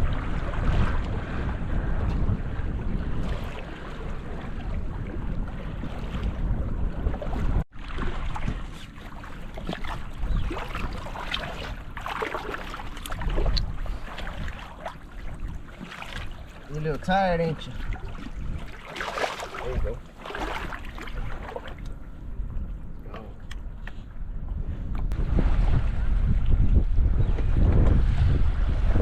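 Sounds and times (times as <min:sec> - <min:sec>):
moving water: 0:00.0 - 0:29.0
wind buffeting microphone: 0:00.0 - 0:29.0
splashes and knocks: 0:03.1 - 0:16.8, 0:17.6 - 0:22.0.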